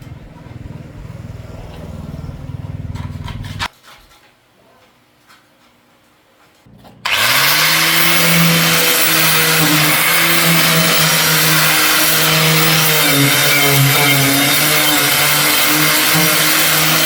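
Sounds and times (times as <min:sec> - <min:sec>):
power tool motor: 0:07.0 - 0:17.0.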